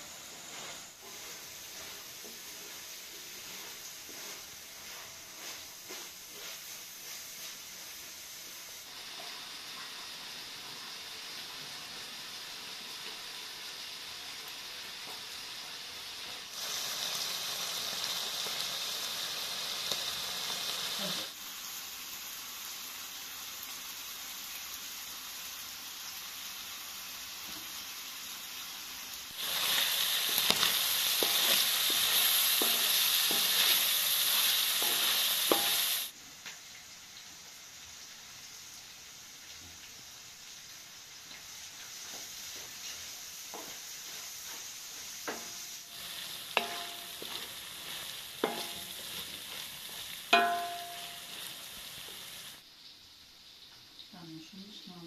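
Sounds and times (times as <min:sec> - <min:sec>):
food sizzling in a pan: 0:00.0 - 0:55.0
spatula scraping and clacking pan: 0:00.3 - 0:07.7, 0:29.4 - 0:36.1, 0:42.0 - 0:52.2.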